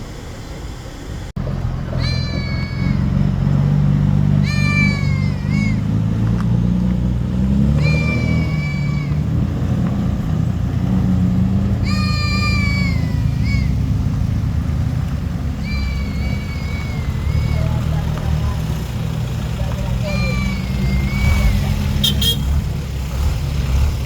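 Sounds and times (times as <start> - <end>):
cat meowing: 1.9 - 3.2, 4.4 - 5.9, 7.8 - 9.3, 11.8 - 13.8, 15.6 - 18.2, 20.0 - 21.8.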